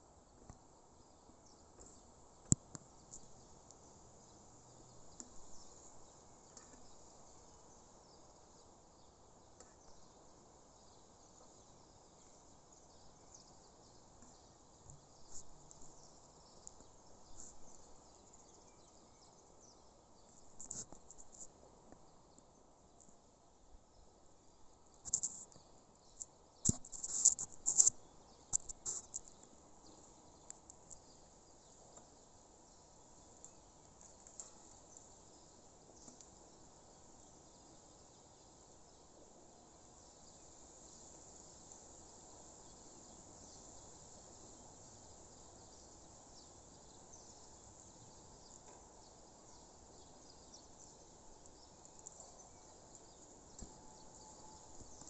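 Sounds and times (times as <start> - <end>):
faint background hiss: 0.0 - 55.0
insects chirping: 24.9 - 55.0.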